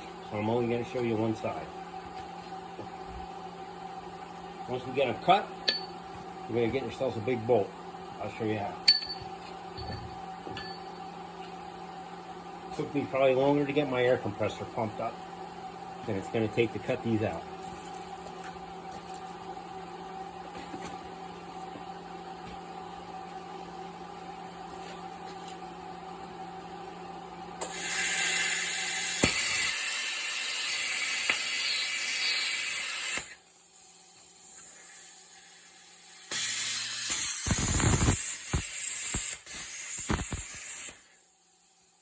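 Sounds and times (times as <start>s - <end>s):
steady machine hum: 0.0s - 27.7s
plasma cutter hissing: 27.6s - 41.9s.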